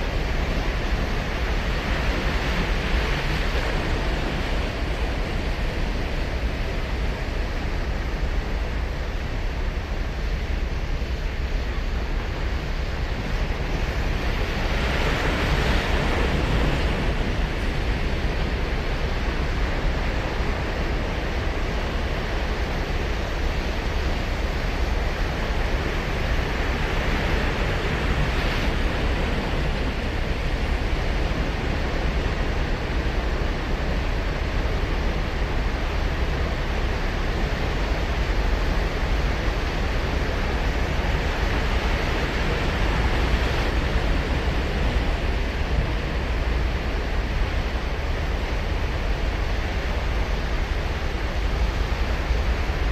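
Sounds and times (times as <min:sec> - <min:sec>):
ocean surf on beach: 0:00.0 - 0:52.9
wind rumble on microphone: 0:00.0 - 0:52.9.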